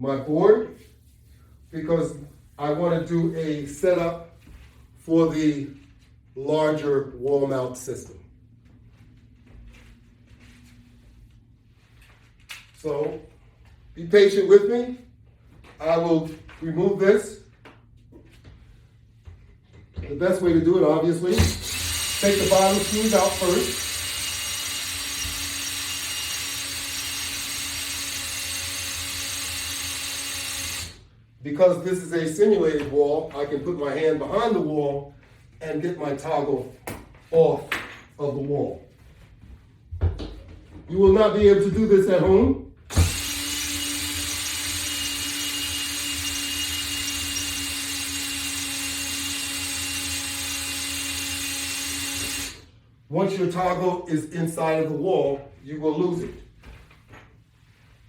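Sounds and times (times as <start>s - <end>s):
power drill running: 21.3s - 31.1s, 42.9s - 52.8s.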